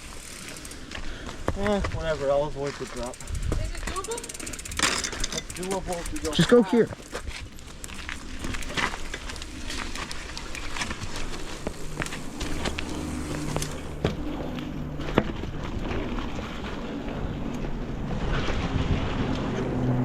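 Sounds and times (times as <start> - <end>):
bike clattering over bumps: 0.1 - 17.1.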